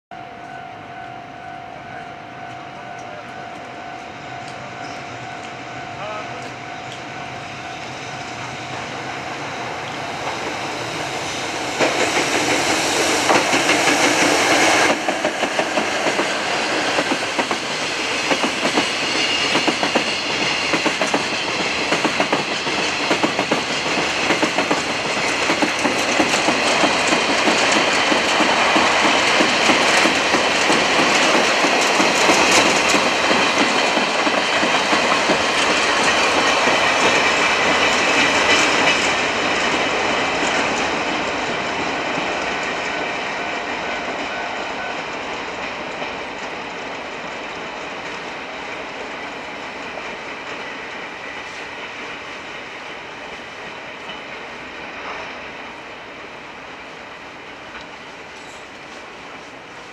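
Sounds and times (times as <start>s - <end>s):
electric locomotive passing: 0.1s - 59.9s
wheels clacking over rail joints: 11.6s - 50.7s.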